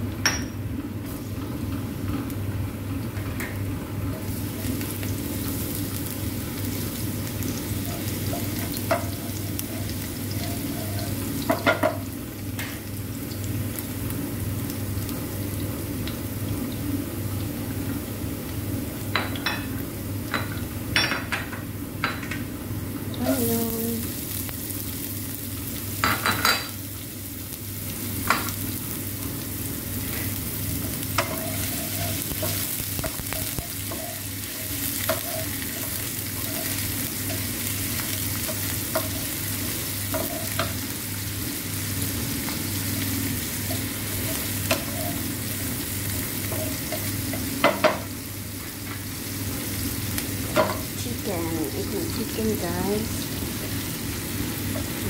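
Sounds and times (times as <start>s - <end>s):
onion and garlic sizzling in oil: 0.0s - 55.0s
wooden utensil scraping a pan: 31.2s - 36.8s.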